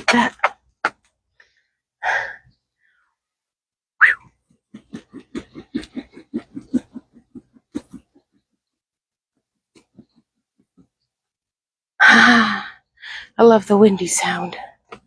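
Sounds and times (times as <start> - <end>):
woman giggling: 4.8 - 8.4.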